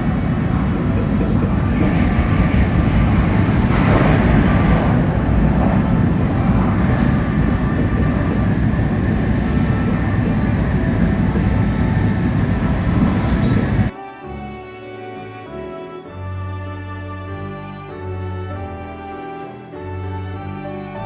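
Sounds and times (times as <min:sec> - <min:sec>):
train rumble and rush inside car: 0:00.0 - 0:13.9
music: 0:00.0 - 0:21.0.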